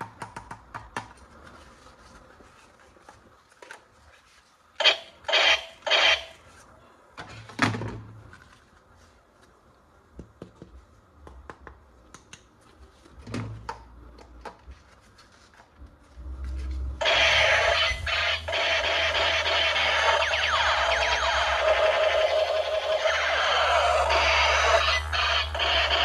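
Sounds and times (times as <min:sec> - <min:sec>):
loud continuous sound: 0:15.9 - 0:26.0.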